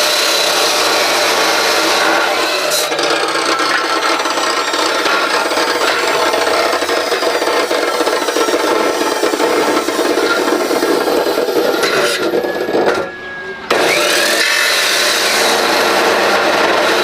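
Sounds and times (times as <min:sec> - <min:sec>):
tool rasping material: 0:00.0 - 0:13.0.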